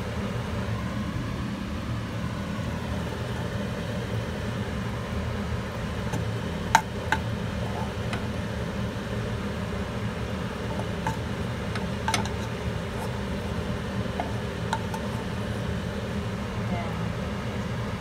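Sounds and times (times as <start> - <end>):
steady low hum: 0.0 - 18.0
utensils clinking: 10.6 - 15.4.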